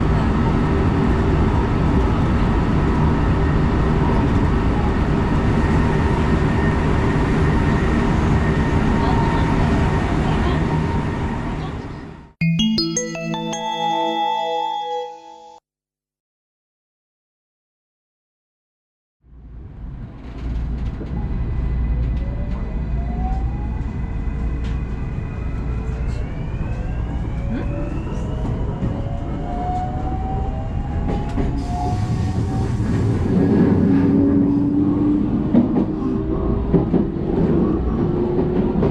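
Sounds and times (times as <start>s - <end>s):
train rumble and hum: 0.0s - 12.2s, 19.5s - 38.9s
train wheels rumbling on rail: 19.7s - 26.8s, 30.8s - 38.9s.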